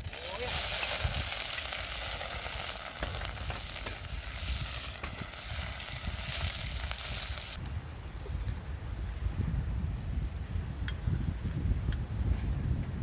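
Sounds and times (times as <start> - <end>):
food sizzling in hot oil: 0.0 - 7.6.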